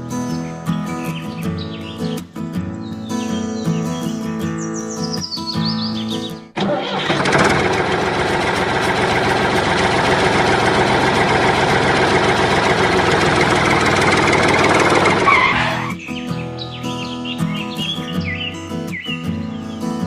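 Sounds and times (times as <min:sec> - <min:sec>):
music: 0:00.0 - 0:06.6, 0:15.6 - 0:20.0
machine running roughly: 0:06.6 - 0:15.4.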